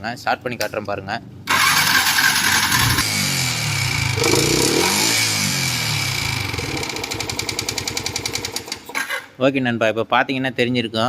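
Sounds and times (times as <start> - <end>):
motorcycle engine revving: 1.5 - 8.6.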